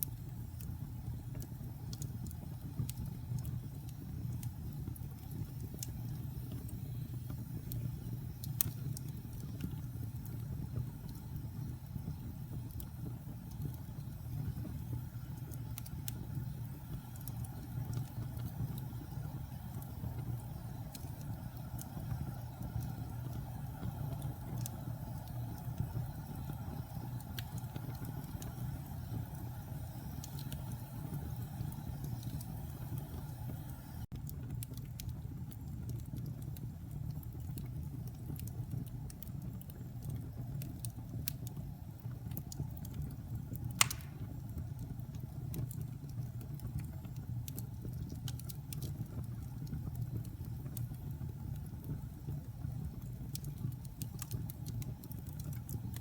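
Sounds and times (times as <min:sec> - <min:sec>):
low rumble of flames: 0:00.0 - 0:56.0
wood fire crackling: 0:00.0 - 0:56.0
sharp loud pop: 0:43.8 - 0:44.2.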